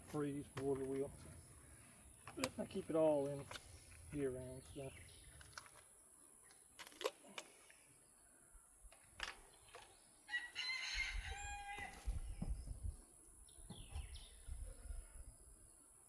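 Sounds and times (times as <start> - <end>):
rooster crowing: 10.3 - 12.1
chirps: 12.4 - 15.0.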